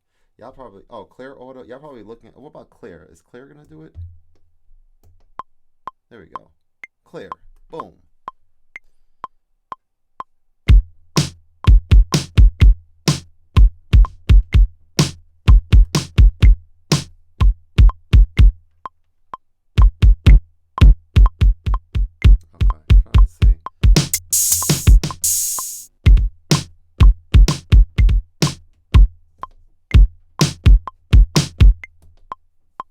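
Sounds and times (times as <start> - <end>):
drum machine beat: 10.7 - 18.6, 19.8 - 29.1, 29.9 - 31.9.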